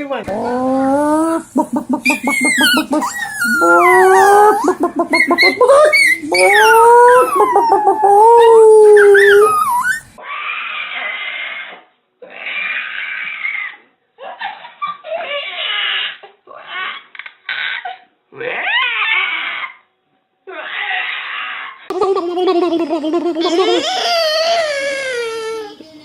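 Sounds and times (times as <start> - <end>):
muffled sounds: 0.2 - 9.8
dog howling: 0.3 - 11.2.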